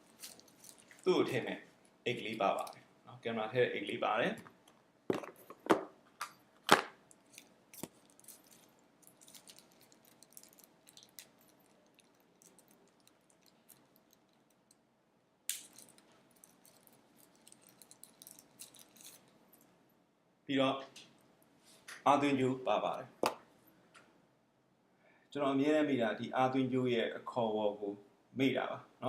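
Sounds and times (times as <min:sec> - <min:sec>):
packaging rustling: 0:00.0 - 0:01.1, 0:06.7 - 0:14.6, 0:15.6 - 0:19.3
packaging crinkle: 0:00.0 - 0:01.4, 0:07.1 - 0:14.7, 0:15.5 - 0:19.6.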